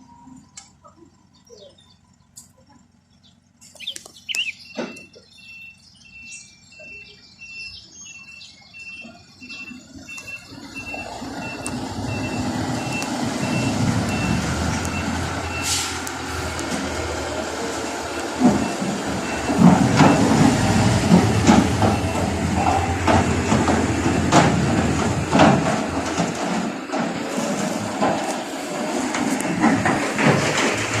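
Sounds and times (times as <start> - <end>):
truck diesel engine running: 0.0 - 31.0
reversing alarm beeping: 4.3 - 31.0
sharp metallic knocks: 18.2 - 28.3.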